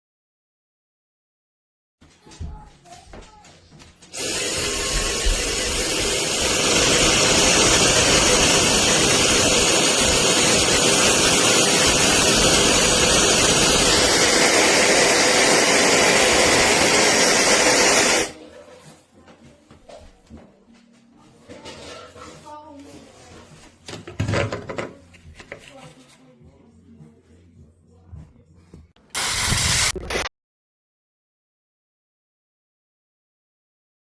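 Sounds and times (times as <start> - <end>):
blow dryer running: 4.1 - 18.4, 29.2 - 30.3.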